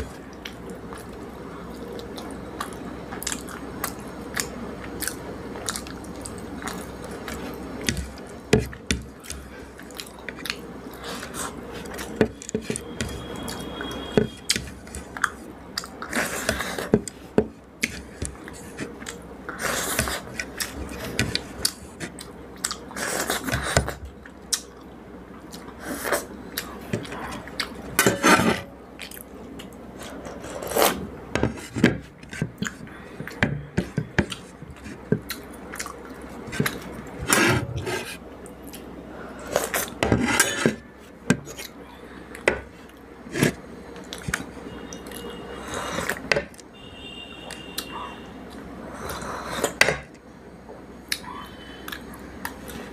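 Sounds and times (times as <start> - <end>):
chewing with wet mouth clicks: 0.3 - 7.5, 21.3 - 22.9, 35.2 - 36.8
food scraping on plate: 28.0 - 28.7, 36.5 - 38.2, 39.6 - 40.8.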